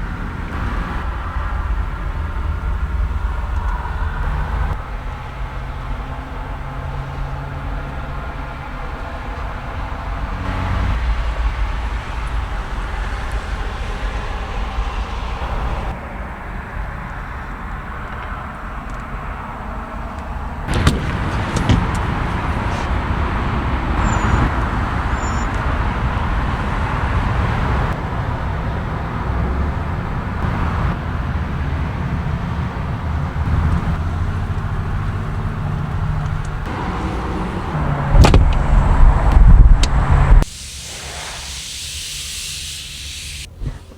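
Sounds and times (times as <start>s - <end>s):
car engine running: 20.7s - 32.1s.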